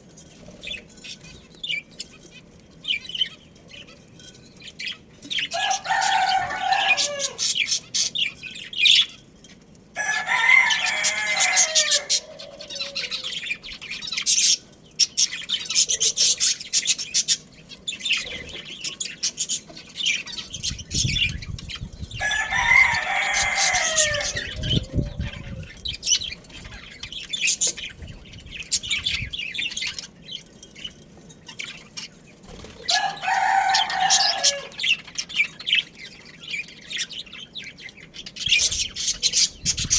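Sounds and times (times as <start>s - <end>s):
small birds chirping: 0.0s - 39.9s
rooster crowing: 5.5s - 7.6s, 10.0s - 13.4s, 22.2s - 25.7s, 32.9s - 35.0s.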